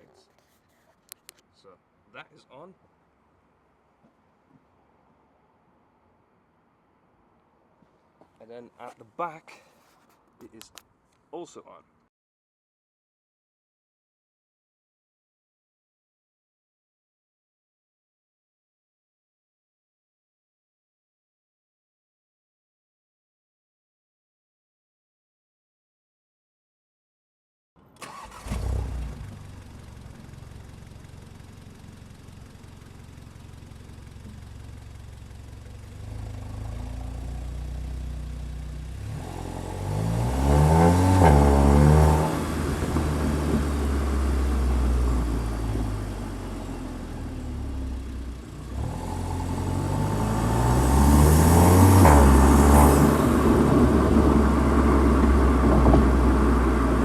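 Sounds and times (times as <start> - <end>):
car engine revving: 28.0 - 57.0.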